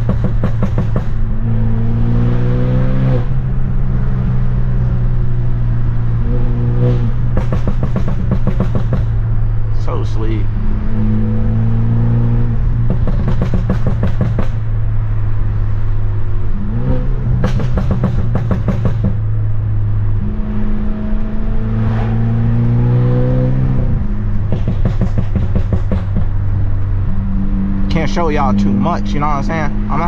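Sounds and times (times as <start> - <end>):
exhaust pops and bangs: 0.0 - 1.2, 7.3 - 9.2, 12.8 - 14.7, 17.4 - 19.2, 24.4 - 26.4
car exhaust drone: 0.0 - 30.0.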